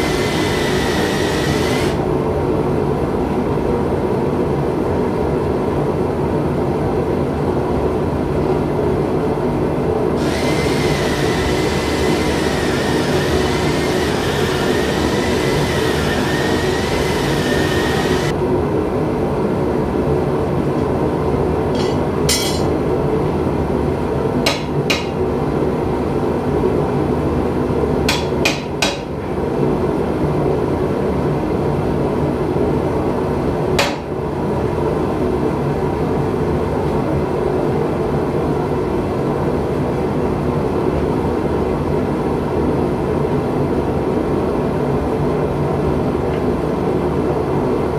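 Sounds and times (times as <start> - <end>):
hissing whistle: 10.2 - 18.3
metal strikes: 21.8 - 22.7.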